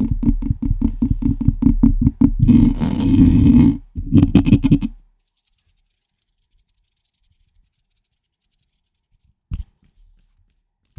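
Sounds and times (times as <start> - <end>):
tap on microphone: 0.0 - 4.9
fingers scratching microphone: 0.0 - 5.0.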